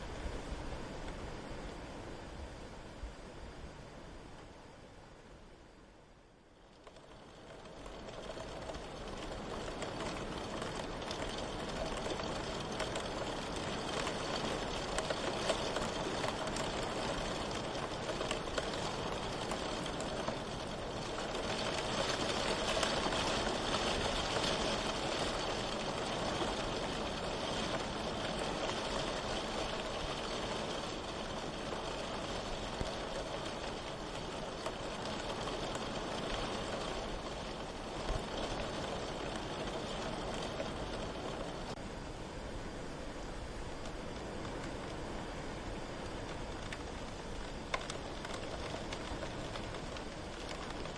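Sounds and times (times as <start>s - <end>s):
steady rain: 0.0s - 50.9s.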